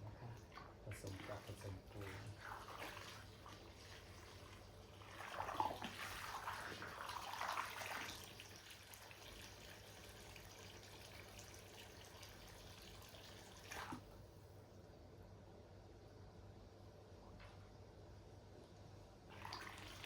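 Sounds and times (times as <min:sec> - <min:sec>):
water sloshing and splashing: 0:00.4 - 0:10.2, 0:11.0 - 0:14.2.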